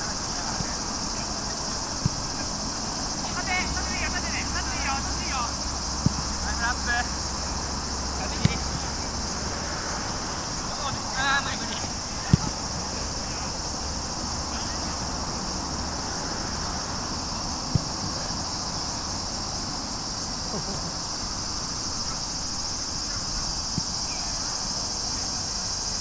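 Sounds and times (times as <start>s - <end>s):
insects chorus: 0.0s - 26.0s
short thuds: 1.7s - 2.5s, 6.0s - 6.4s, 8.3s - 9.0s, 10.8s - 13.0s.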